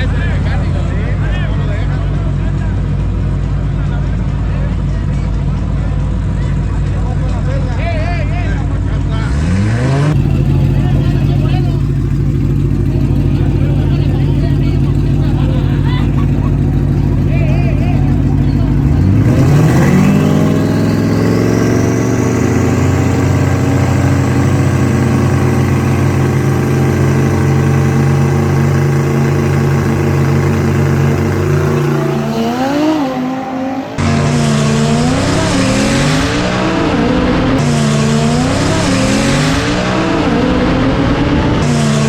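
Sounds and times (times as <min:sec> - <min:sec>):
drag car engine revving: 0:08.6 - 0:42.0.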